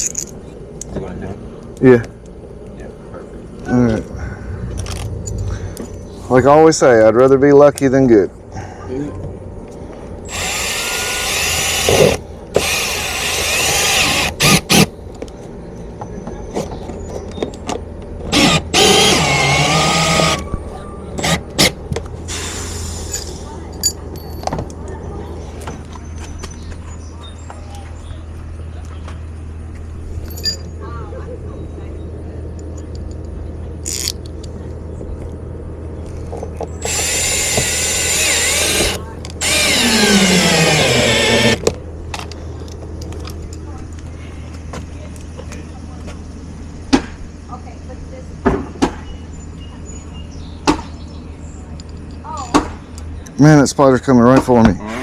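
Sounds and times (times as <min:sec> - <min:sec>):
low hum: 0:00.0 - 0:06.8, 0:07.8 - 0:48.4
cordless drill driving screws: 0:10.3 - 0:14.9, 0:18.3 - 0:20.4, 0:36.8 - 0:41.6.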